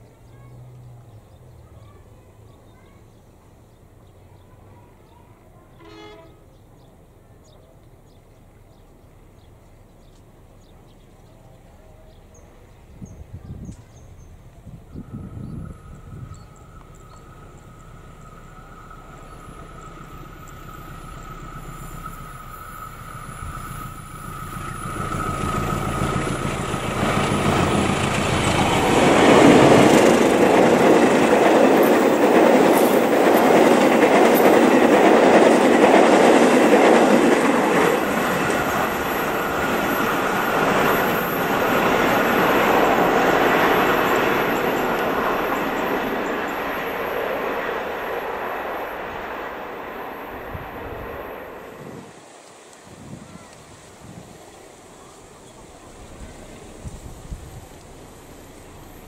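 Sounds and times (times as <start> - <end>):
train wheels on rails: 5.8 - 59.0
locomotive engine drone: 14.3 - 52.3, 53.1 - 59.0
locomotive whine: 14.3 - 59.0.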